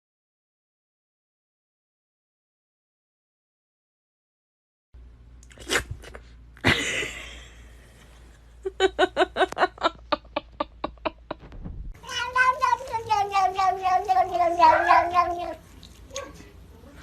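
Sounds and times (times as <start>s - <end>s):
sharp knocks: 11.4s - 12.0s
cat crying: 12.0s - 16.4s
cat yowling: 12.0s - 16.4s.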